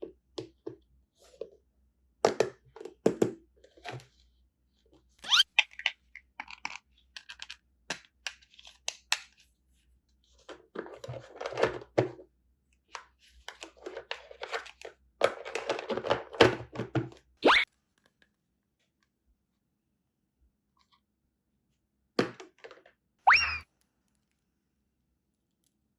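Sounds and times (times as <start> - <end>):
rustling and crinkling: 10.3 - 12.2.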